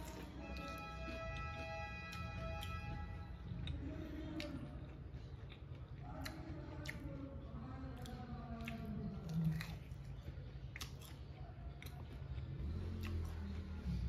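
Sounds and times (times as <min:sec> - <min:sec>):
crunchy chicken chewing: 0:07.9 - 0:13.7.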